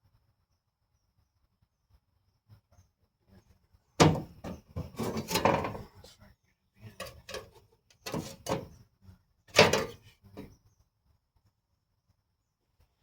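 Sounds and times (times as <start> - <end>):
hard objects clattering and scraping: 4.0 - 6.1, 7.0 - 8.8, 9.5 - 10.5.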